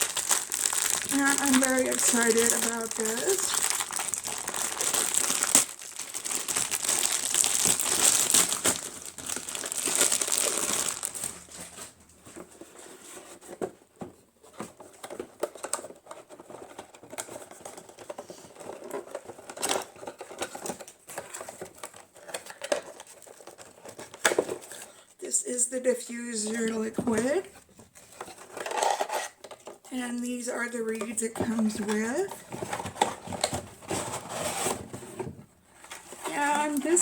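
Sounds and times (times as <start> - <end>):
packaging crinkling: 0.0 - 12.6, 15.2 - 25.0.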